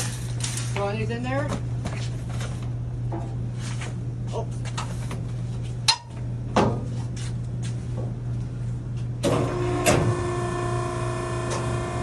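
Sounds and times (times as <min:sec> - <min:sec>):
multi-tone machine whine: 0:09.2 - 0:12.0.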